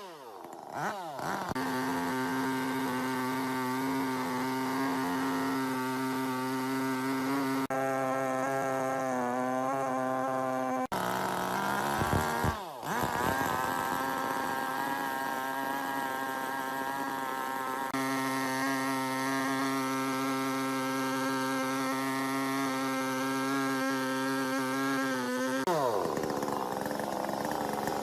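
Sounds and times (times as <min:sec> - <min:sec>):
chainsaw engine running: 0:00.0 - 0:28.0.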